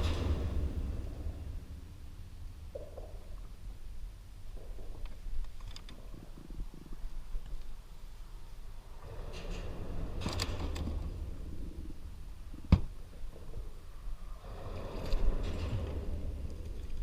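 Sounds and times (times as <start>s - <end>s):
wind rumble on microphone: 0.0s - 5.4s.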